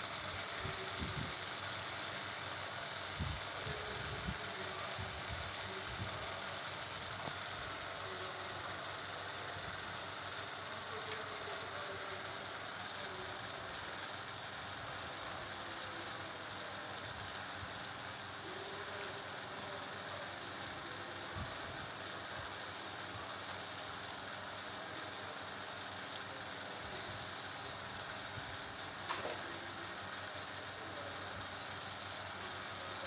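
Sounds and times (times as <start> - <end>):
steady background noise: 0.0 - 33.0.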